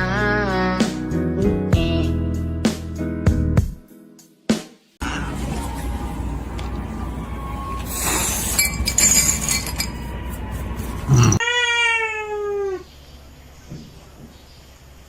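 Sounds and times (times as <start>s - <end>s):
clatter with clinks: 8.4s - 10.1s
cat meowing: 11.1s - 12.8s.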